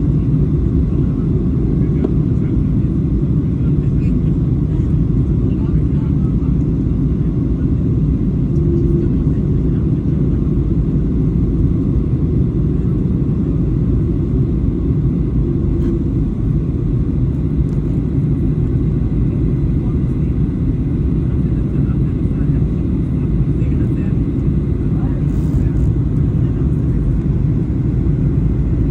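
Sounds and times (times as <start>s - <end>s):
jet engine roar in cabin: 0.0s - 28.9s.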